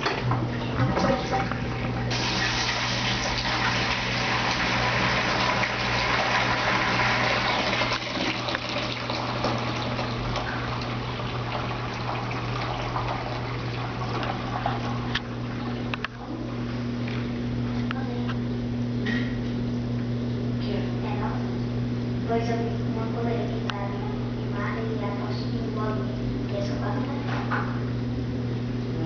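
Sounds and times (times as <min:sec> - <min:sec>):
drain pump humming: 0:00.0 - 0:29.0.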